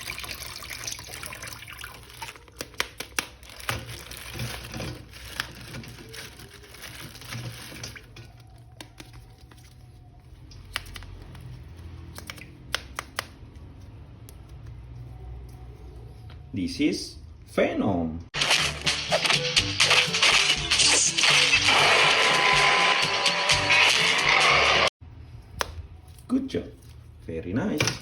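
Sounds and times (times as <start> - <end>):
plastic figure clicks and taps: 12.2 - 13.3.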